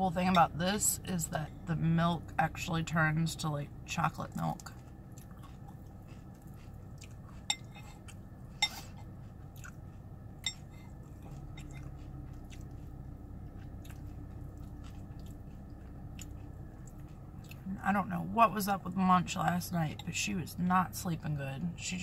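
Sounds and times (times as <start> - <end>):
person chewing cereal: 4.6 - 17.7.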